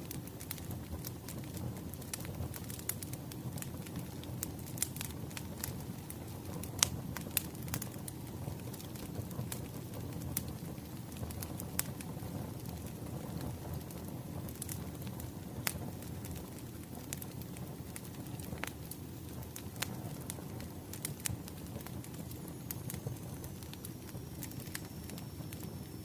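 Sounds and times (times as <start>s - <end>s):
fire popping and snapping: 0.0s - 26.0s
wood fire rumbling: 0.0s - 26.0s.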